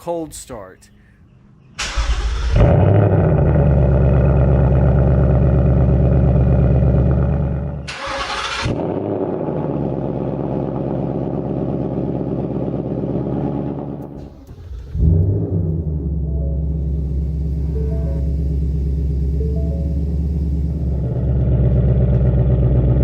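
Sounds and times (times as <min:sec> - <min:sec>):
engine cranking: 0:01.8 - 0:02.8, 0:07.9 - 0:08.8, 0:14.0 - 0:22.6
car engine idling: 0:01.8 - 0:08.4, 0:09.5 - 0:23.0.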